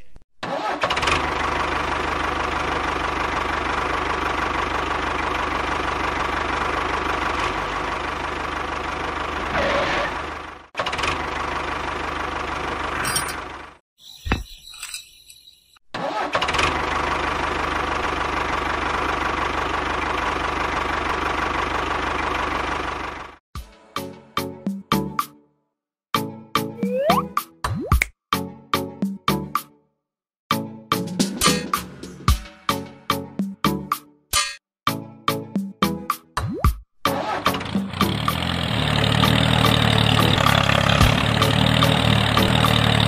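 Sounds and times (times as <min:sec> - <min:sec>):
tractor engine running: 0:00.4 - 0:13.8, 0:16.0 - 0:23.4, 0:37.2 - 0:43.0.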